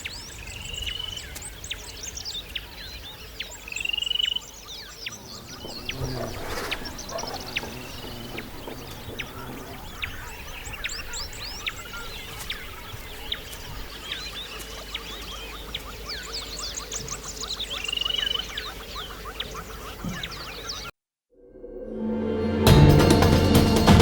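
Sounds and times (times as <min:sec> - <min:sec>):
birds chirping and calling: 0:00.0 - 0:20.9
low harsh bird call: 0:04.9 - 0:14.3
short rising bird trills: 0:05.1 - 0:13.5.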